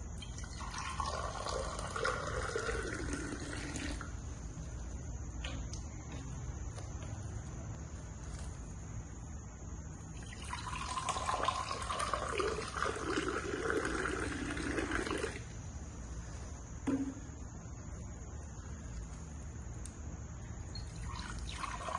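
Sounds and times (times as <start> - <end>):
water pouring into container: 0.2 - 4.1, 10.2 - 15.4, 21.0 - 21.9.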